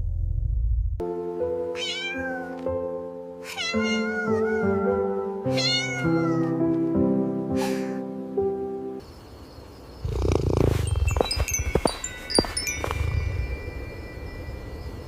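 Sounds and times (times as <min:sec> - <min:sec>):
low rumble: 0:00.0 - 0:01.0
soft music of held notes: 0:01.0 - 0:09.0
kitten meowing: 0:01.8 - 0:02.7, 0:03.5 - 0:06.6.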